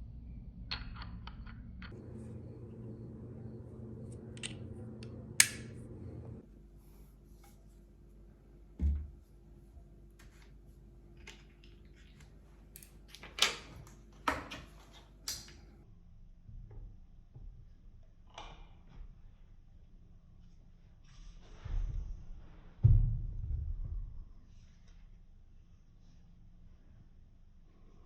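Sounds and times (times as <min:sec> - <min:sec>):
low steady hum: 0:00.0 - 0:13.2
dull thump: 0:08.8 - 0:09.2.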